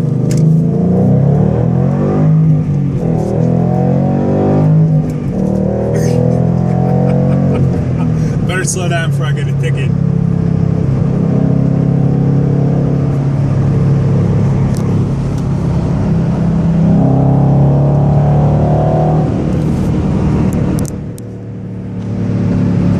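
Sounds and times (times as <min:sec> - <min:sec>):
car engine deep exhaust note: 0:00.0 - 0:22.9.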